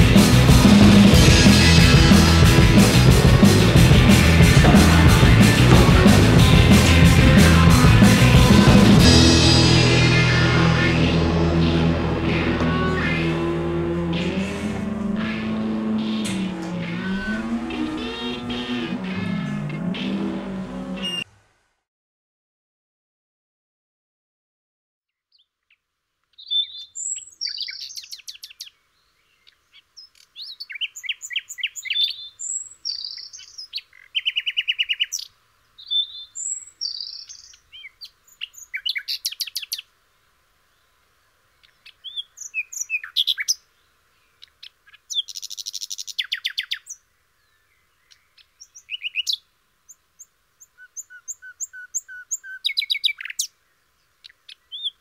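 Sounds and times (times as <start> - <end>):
birdsong with chirps and trills: 11.6 - 21.3, 25.1 - 39.9, 40.7 - 55.0.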